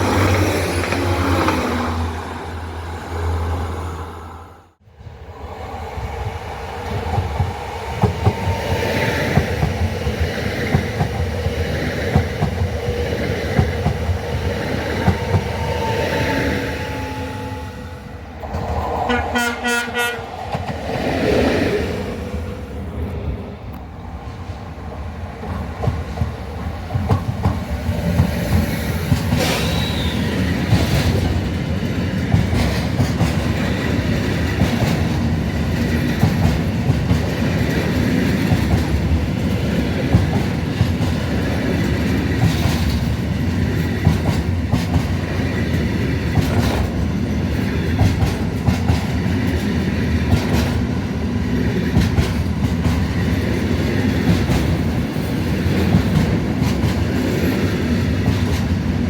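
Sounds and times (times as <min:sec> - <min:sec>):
train rumbling past: 0:00.0 - 0:59.0
wheels clacking over rail joints: 0:25.4 - 0:59.0.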